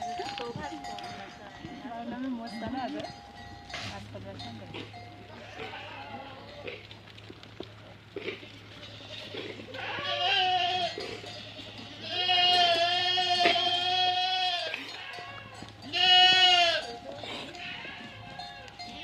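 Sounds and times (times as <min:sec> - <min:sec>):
goat bleating: 0:04.4 - 0:06.9, 0:08.2 - 0:19.0.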